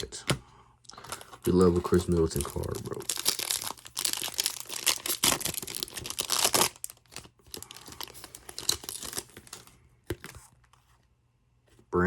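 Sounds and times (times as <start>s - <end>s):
foil pack tearing and crinkling: 1.1s - 9.6s.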